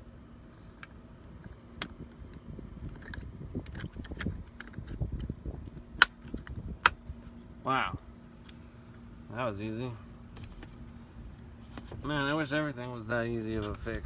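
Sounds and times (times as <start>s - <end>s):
plastic part clicking and rustling: 0.6s - 7.0s.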